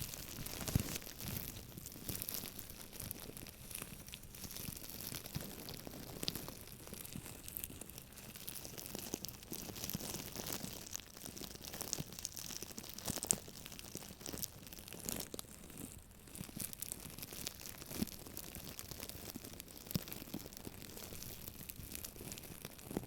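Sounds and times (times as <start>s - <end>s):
scratching and crinkling by hand: 0.0s - 23.0s.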